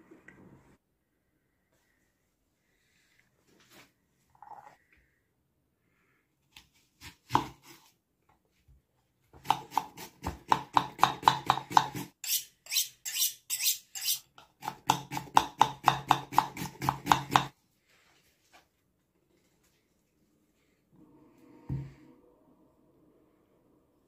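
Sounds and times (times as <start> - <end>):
knife chopping on cutting board: 9.4 - 12.1, 14.6 - 17.5.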